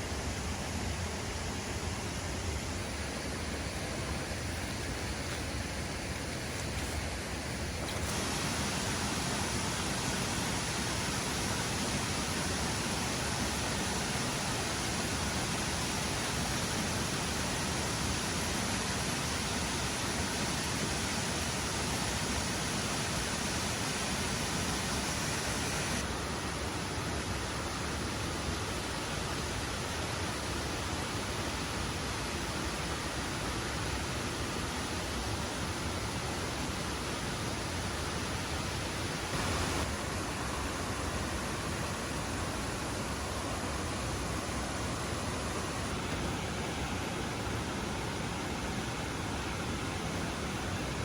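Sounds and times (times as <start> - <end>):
waterfall rushing: 7.2 - 51.0.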